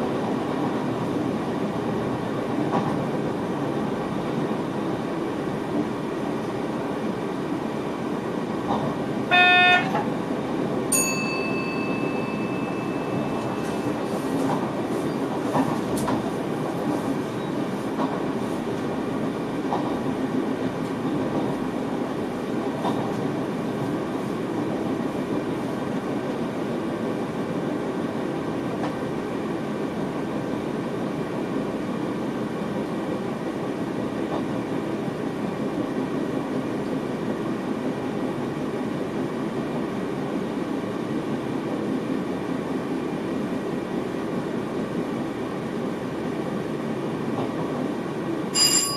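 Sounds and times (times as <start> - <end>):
train wheels rumbling on rail: 0.0 - 48.9
sharp clicks from rail joints: 2.7 - 3.1, 8.6 - 9.0, 13.4 - 17.0, 17.9 - 18.9, 19.7 - 20.0, 22.8 - 23.3
held tone: 10.9 - 14.3, 48.6 - 48.9.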